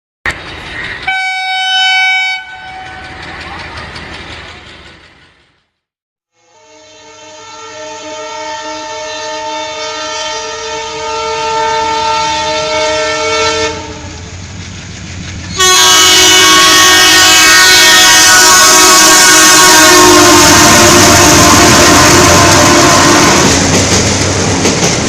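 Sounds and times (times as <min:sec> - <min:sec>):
train rumbling past: 0:00.3 - 0:25.0
locomotive horn blast: 0:01.1 - 0:03.0, 0:06.4 - 0:14.2, 0:15.6 - 0:23.6.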